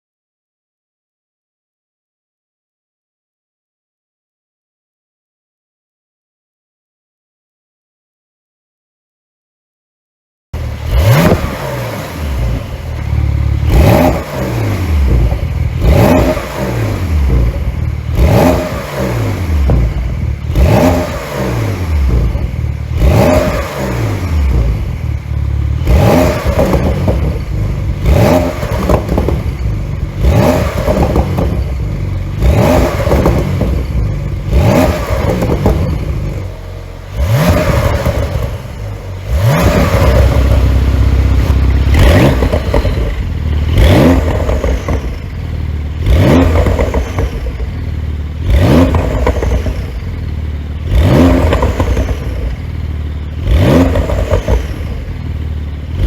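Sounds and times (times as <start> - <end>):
car engine revving: 10.6 - 56.0
exhaust pops and crackles: 19.6 - 20.4, 26.2 - 36.5, 37.4 - 45.4, 46.2 - 47.9, 48.5 - 49.9, 50.9 - 52.7.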